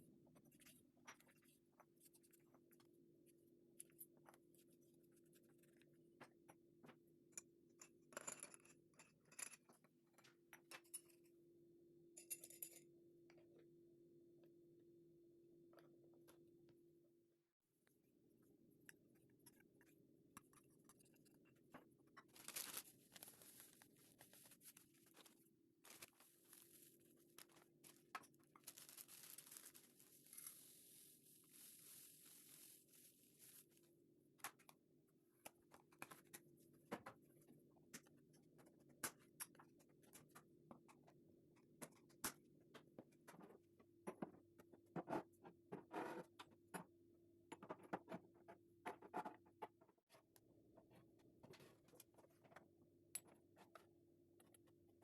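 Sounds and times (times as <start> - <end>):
soft rustling: 22.3 - 33.8.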